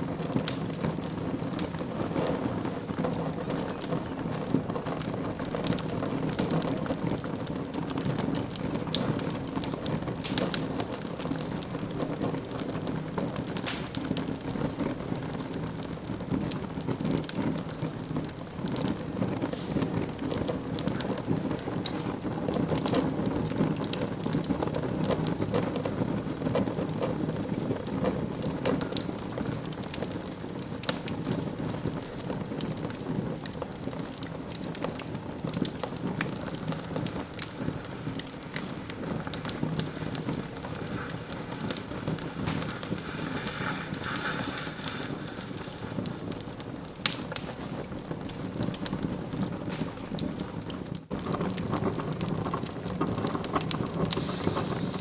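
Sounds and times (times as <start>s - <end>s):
burning wood crackling and popping: 0.0s - 55.0s
low rushing of flames: 0.0s - 55.0s.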